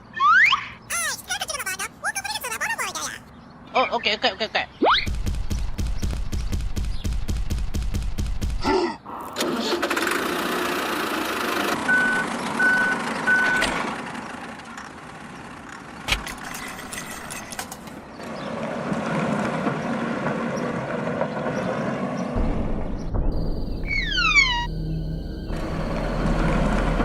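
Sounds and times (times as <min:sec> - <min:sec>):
truck reversing alarm beeps: 0:11.9 - 0:13.7, 0:23.4 - 0:27.0
truck engine running: 0:23.4 - 0:27.0.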